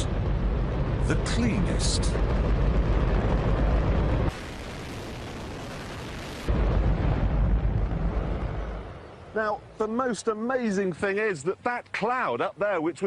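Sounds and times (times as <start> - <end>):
rocket engine roaring: 0.0 - 9.4.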